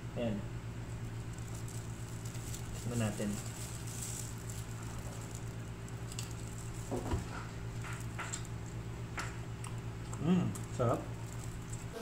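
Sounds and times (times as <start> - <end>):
steady low hum: 0.0 - 12.0
crisp crunches: 0.9 - 8.7, 10.5 - 12.0
chewing chips: 1.0 - 12.0.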